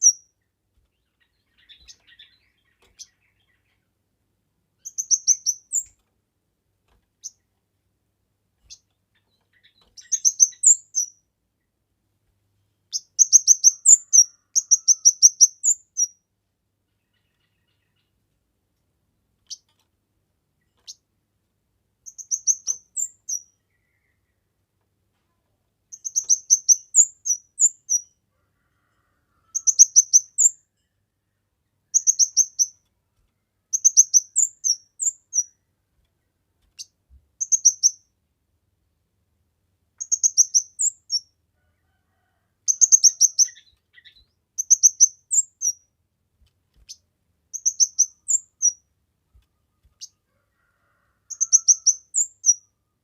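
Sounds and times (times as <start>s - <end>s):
bird high-pitched chirping: 0.0s - 0.4s, 1.0s - 3.9s, 4.8s - 6.0s, 8.6s - 11.2s, 12.9s - 16.2s, 22.0s - 24.2s, 25.9s - 28.2s, 29.5s - 30.7s, 31.9s - 32.8s, 33.7s - 35.6s, 36.8s - 38.1s, 40.0s - 41.3s, 42.7s - 45.9s, 46.8s - 50.2s, 51.3s - 52.7s.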